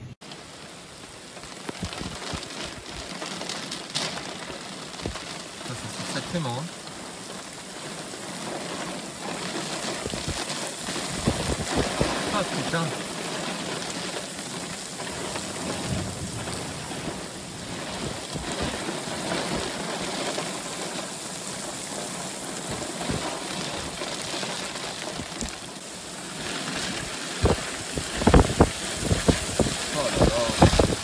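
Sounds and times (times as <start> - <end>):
heavy rain pouring: 0.0 - 31.0
wind buffeting microphone: 1.7 - 2.9, 7.7 - 12.6, 14.5 - 20.9, 21.7 - 31.0.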